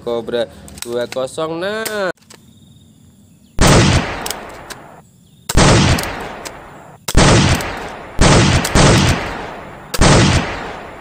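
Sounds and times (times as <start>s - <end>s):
toy gun shots: 5.5s - 10.8s.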